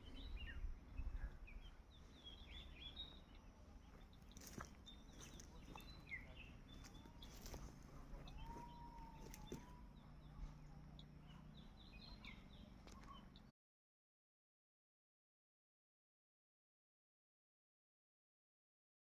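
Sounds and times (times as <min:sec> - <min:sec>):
birds chirping: 0:00.0 - 0:13.5.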